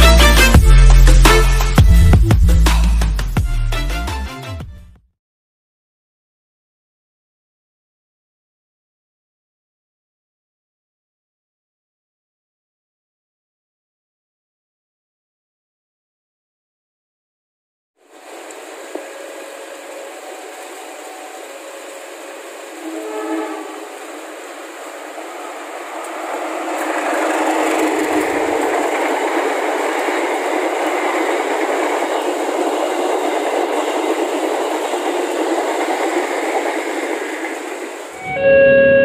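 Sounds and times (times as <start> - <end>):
train passing close by: 18.0 - 38.7
train horn: 19.0 - 24.5, 38.1 - 39.0.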